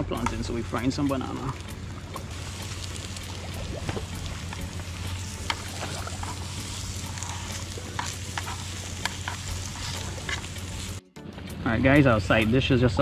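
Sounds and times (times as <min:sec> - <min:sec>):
banana sizzling in a pan: 0:00.3 - 0:11.0
sharp pops and crackles: 0:01.3 - 0:11.0.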